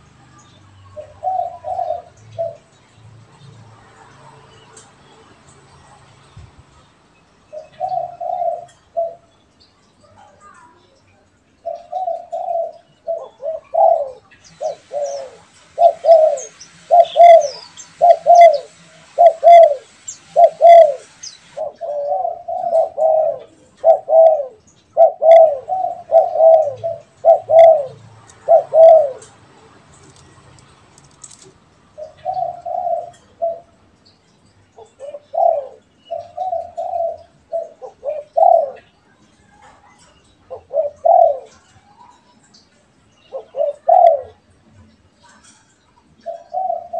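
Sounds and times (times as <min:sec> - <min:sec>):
doves cooing: 0:00.9 - 0:02.8, 0:07.5 - 0:09.4, 0:11.6 - 0:33.9, 0:34.7 - 0:42.3, 0:43.2 - 0:44.6, 0:45.2 - 0:46.9
small bird chirping: 0:06.3 - 0:46.9.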